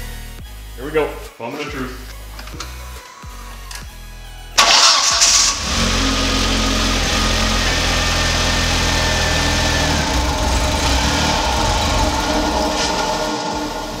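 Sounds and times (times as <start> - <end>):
car engine starting and idling: 4.6 - 14.0.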